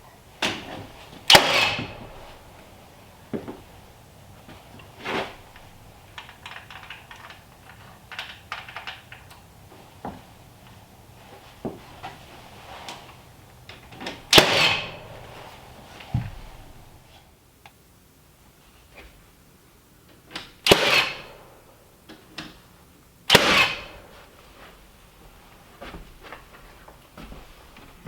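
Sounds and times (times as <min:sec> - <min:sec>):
light knocks and clicks: 0:00.4 - 0:17.0.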